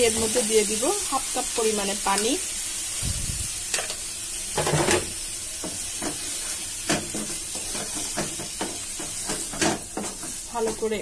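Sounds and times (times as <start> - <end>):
food sizzling in a pot: 0.0 - 11.0
metal spoon stirring and scraping: 6.0 - 10.9.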